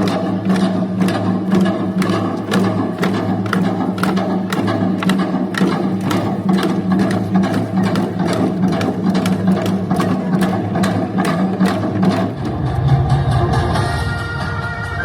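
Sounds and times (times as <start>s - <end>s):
fast drumming: 0.0s - 14.2s.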